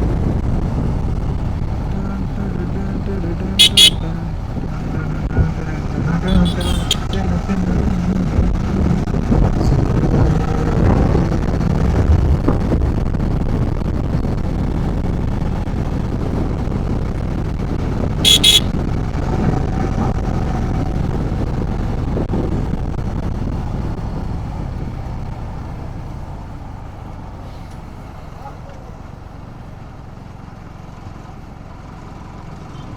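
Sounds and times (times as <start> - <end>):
engine and wind rumble: 0.0 - 32.9
high-pitched horn toots: 3.6 - 4.2, 6.3 - 7.3, 18.3 - 18.7.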